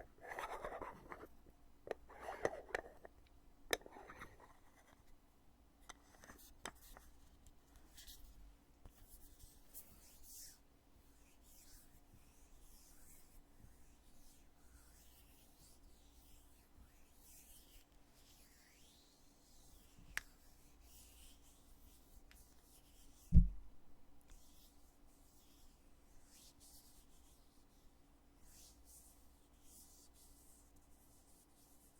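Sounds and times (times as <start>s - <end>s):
faint rubbing of container lid: 0.0s - 3.1s, 3.7s - 5.0s
heavy dull thump of lid: 23.3s - 23.6s.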